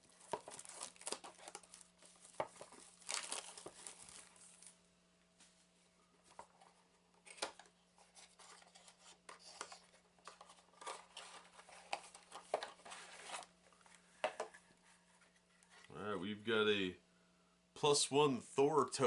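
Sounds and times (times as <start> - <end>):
cardboard scraping and rustling: 8.0 - 15.9.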